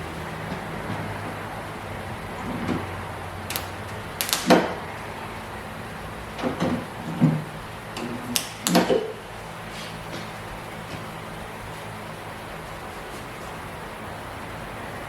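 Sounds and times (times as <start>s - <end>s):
steady low hum: 0.0s - 15.0s
tools knocking and clattering: 6.4s - 9.2s.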